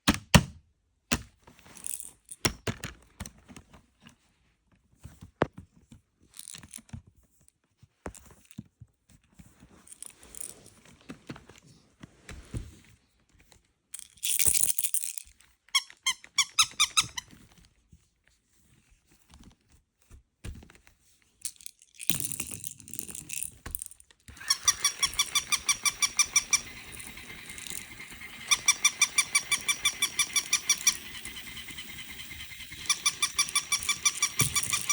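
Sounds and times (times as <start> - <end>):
squeaky dog toy squeaking: 15.8 - 17.2, 24.3 - 34.9
knocks and clicks: 24.3 - 34.9.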